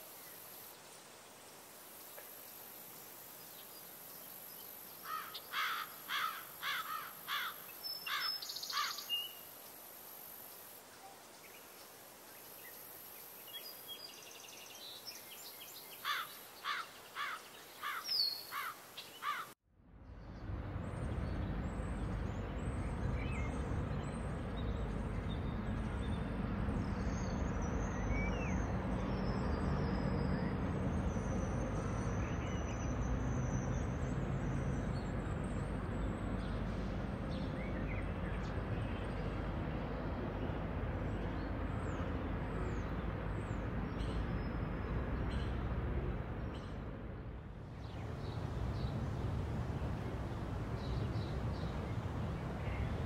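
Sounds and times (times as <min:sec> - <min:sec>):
steady noise with low hum: 0:00.0 - 0:53.0.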